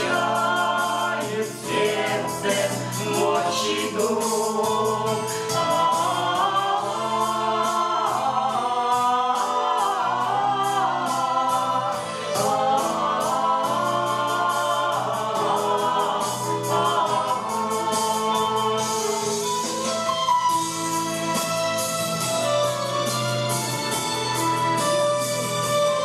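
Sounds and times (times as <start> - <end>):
vocal group singing: 0.0 - 20.3
accompaniment with steady beat: 0.0 - 26.0.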